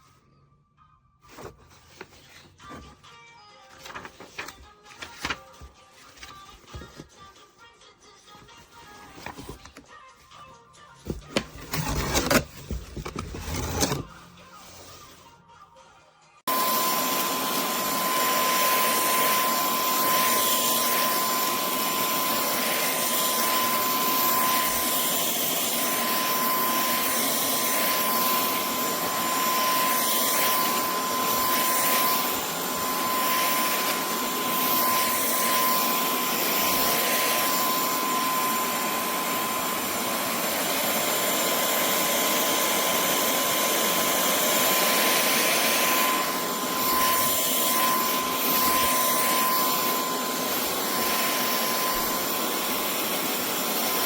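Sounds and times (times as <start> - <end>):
vacuum cleaner running: 16.5 - 54.0.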